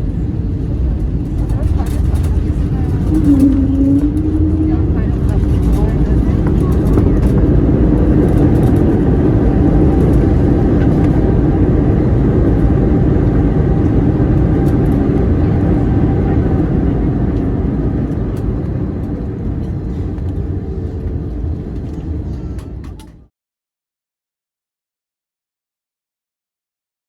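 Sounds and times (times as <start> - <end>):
airplane cabin rumble: 0.0 - 23.3.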